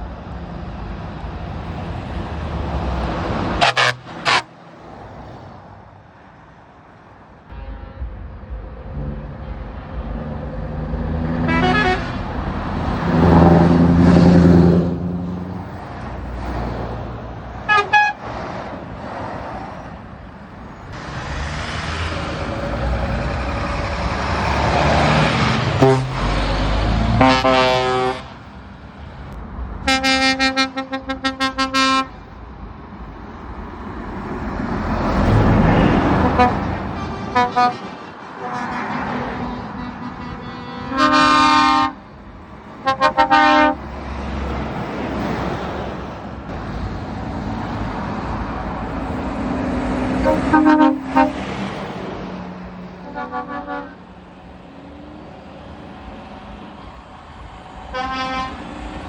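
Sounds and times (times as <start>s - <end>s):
lorry engines driving past: 0.0s - 59.0s
rapid pitched horn blasts: 3.6s - 4.5s, 7.5s - 8.3s, 11.4s - 12.3s, 17.7s - 18.2s, 25.8s - 26.4s, 27.2s - 28.4s, 29.9s - 32.1s, 35.7s - 42.0s, 42.8s - 43.8s, 50.2s - 51.4s, 53.0s - 54.0s, 57.9s - 58.6s
horn toots: 3.6s - 4.6s, 11.4s - 12.4s, 17.6s - 18.3s, 25.5s - 28.4s, 29.9s - 32.2s, 35.6s - 42.1s, 42.8s - 43.8s, 50.2s - 51.5s, 53.0s - 54.1s, 57.9s - 58.7s.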